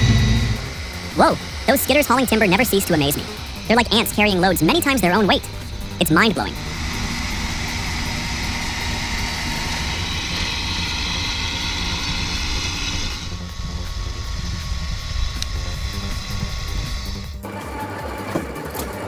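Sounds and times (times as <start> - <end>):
high hiss: 0.0 - 17.4
skidder engine running: 0.0 - 19.0.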